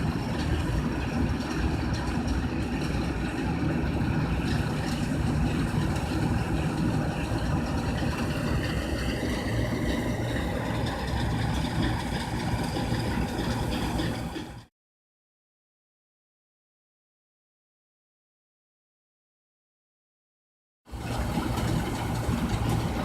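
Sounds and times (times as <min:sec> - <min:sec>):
diesel engine running: 0:00.0 - 0:14.7, 0:20.9 - 0:23.0
high machine whine: 0:00.0 - 0:14.7.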